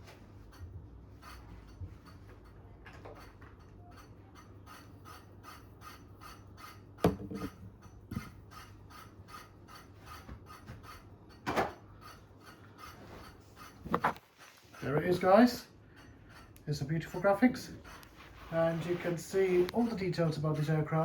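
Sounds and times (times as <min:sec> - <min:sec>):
scraping on cardboard and plastic: 0:12.8 - 0:14.8, 0:17.9 - 0:20.0.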